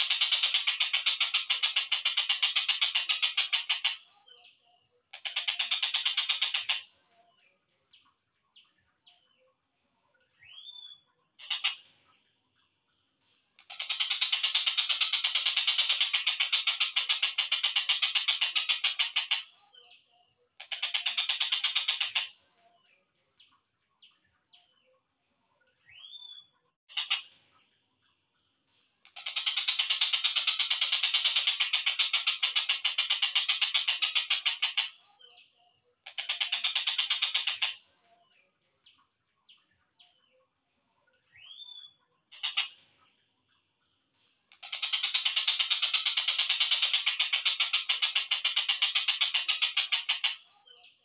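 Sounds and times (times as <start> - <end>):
bird chirps: 0.0 - 51.0.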